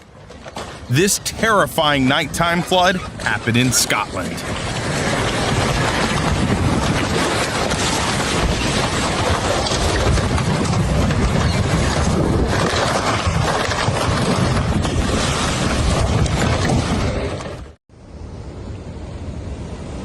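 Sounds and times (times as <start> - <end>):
wind buffeting microphone: 4.4 - 17.7.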